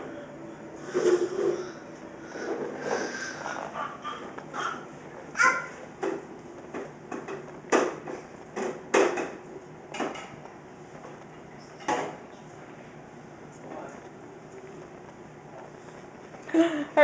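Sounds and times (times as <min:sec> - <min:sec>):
sharp knocks and clatters: 0:06.0 - 0:10.5.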